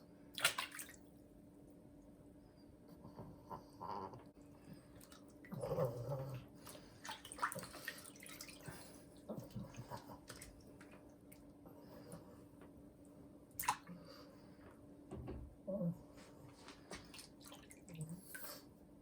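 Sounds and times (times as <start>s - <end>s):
bath water splashing and dripping: 0.3s - 1.0s, 6.6s - 11.4s, 17.0s - 18.4s.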